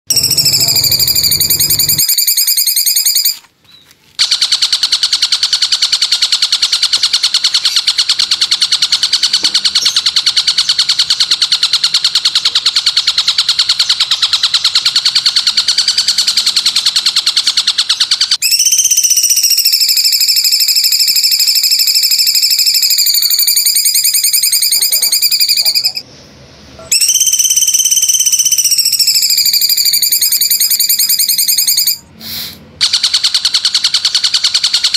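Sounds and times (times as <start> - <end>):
high pulsing whistle: 0.1 - 3.4, 18.4 - 26.0, 26.9 - 32.1
shrill fast buzzing trill: 0.1 - 3.4, 4.2 - 26.0, 26.9 - 32.1.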